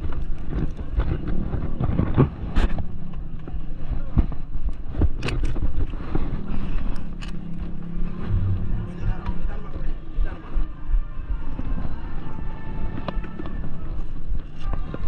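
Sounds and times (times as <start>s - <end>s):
scooter engine running: 0.0s - 11.8s
wind buffeting microphone: 0.0s - 15.0s.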